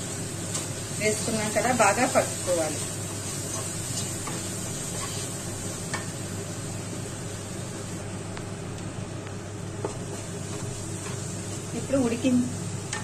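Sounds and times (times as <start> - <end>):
vegetables sizzling in a pan: 0.0 - 13.0
spatula stirring: 0.5 - 6.1, 9.7 - 12.2.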